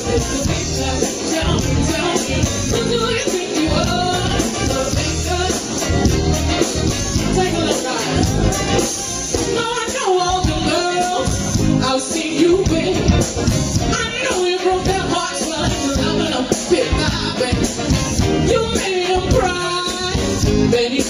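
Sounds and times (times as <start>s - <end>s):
band playing upbeat music: 0.0s - 21.0s
person singing: 0.0s - 21.0s.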